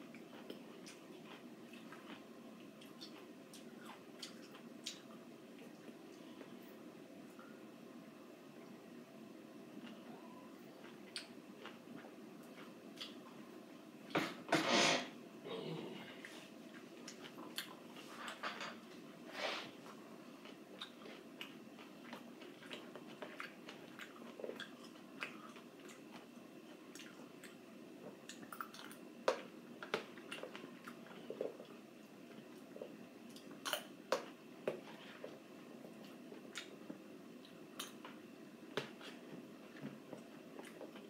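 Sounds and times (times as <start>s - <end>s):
person chewing: 0.1s - 6.0s, 9.8s - 13.3s, 16.2s - 18.4s, 20.4s - 38.2s, 38.8s - 41.0s.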